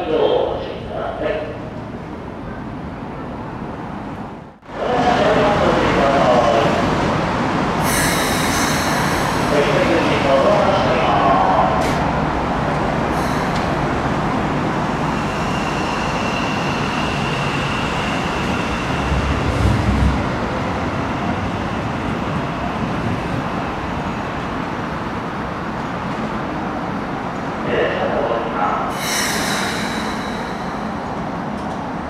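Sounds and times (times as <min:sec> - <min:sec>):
train wheels rumbling on rail: 0:01.6 - 0:27.6, 0:28.8 - 0:32.0.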